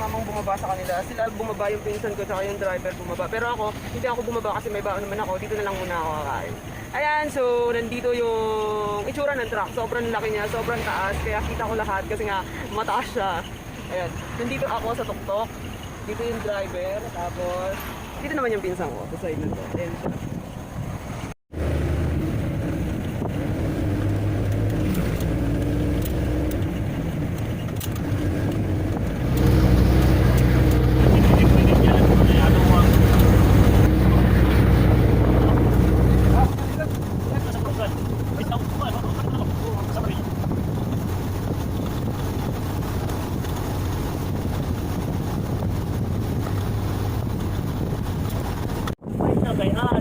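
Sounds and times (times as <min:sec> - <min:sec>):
truck engine humming: 0:20.4 - 0:49.0.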